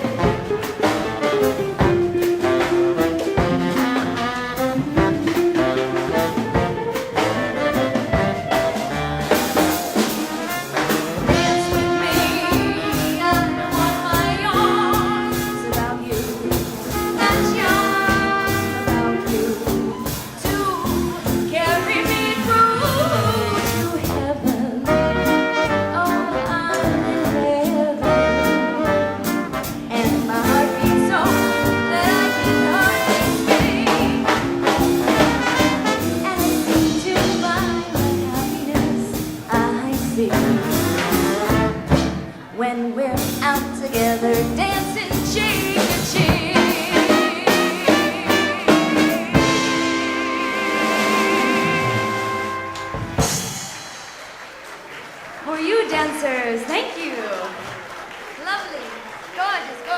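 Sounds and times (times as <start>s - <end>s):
swing band playing jazz: 0.0s - 59.4s.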